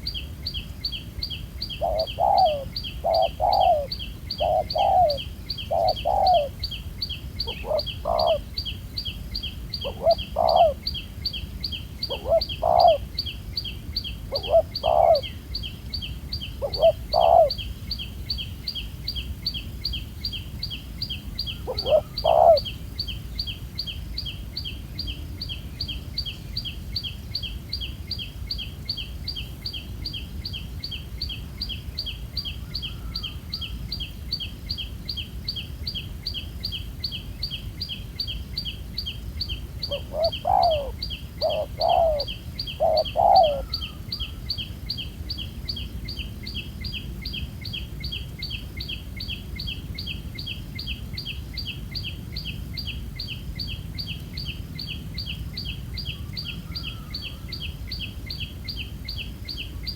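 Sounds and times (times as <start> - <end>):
dove cooing: 1.7 - 6.6, 7.4 - 8.5, 9.8 - 10.8, 12.1 - 13.1, 14.3 - 15.4, 16.6 - 17.6, 21.5 - 22.7, 39.8 - 44.4.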